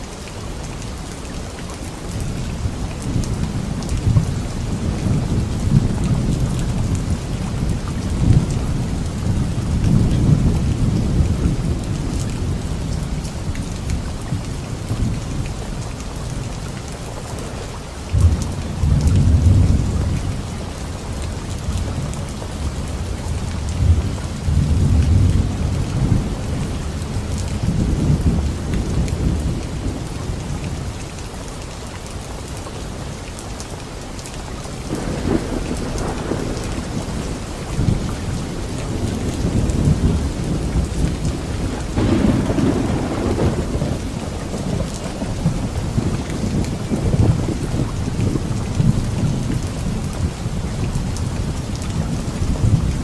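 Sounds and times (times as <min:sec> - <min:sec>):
steady rain falling: 0:00.0 - 0:53.0
thunder rumbling: 0:34.9 - 0:50.6.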